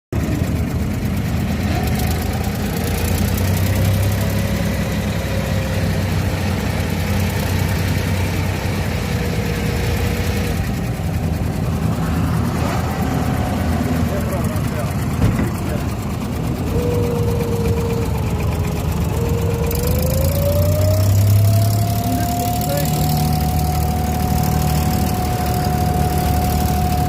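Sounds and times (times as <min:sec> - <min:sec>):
boat engine droning: 0:00.2 - 0:27.0
faint wavering whine: 0:16.7 - 0:27.0.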